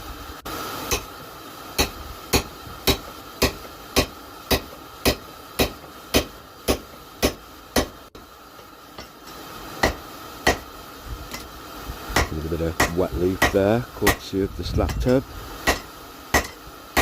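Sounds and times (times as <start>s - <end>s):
hammer striking punch into steel: 1.8s - 8.0s, 9.8s - 10.7s, 12.2s - 14.2s, 15.6s - 17.0s.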